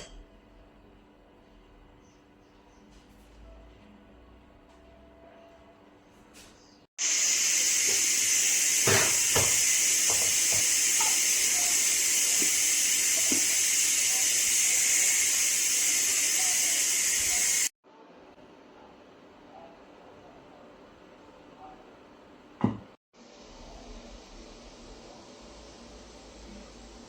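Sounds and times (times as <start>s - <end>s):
water spraying hiss: 7.0s - 17.7s.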